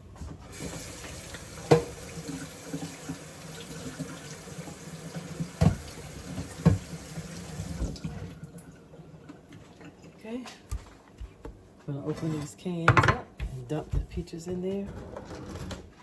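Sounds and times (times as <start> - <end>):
tap running into sink: 0.5 - 8.2.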